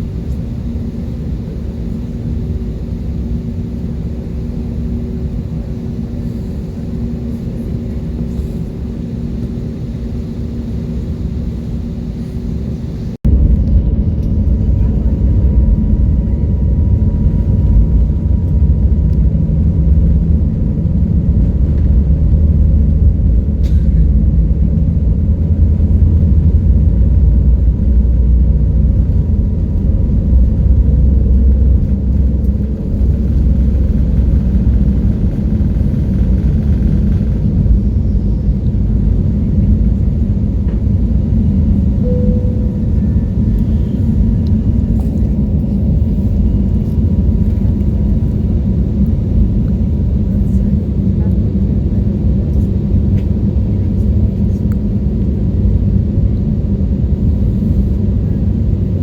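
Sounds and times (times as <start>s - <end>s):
vehicle rumble: 13.0s - 59.0s
faint steady tone: 42.0s - 43.6s.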